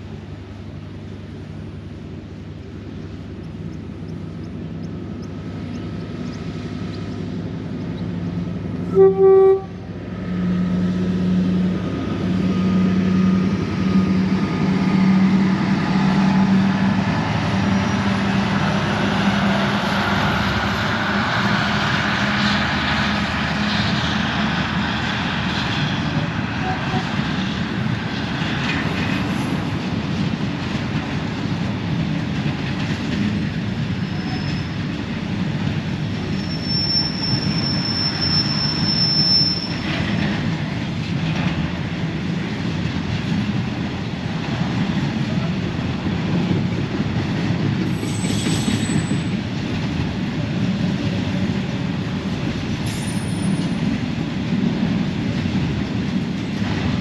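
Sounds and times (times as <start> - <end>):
freight train rumbling: 0.0 - 57.0
high wheel squeals: 17.5 - 18.3, 33.8 - 35.0, 36.2 - 40.2, 47.9 - 49.4, 52.8 - 53.8.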